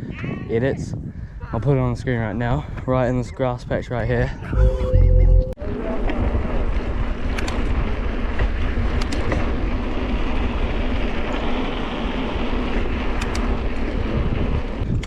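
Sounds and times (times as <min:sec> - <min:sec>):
wind buffeting microphone: 0:00.0 - 0:15.0
low rumble: 0:04.4 - 0:07.1.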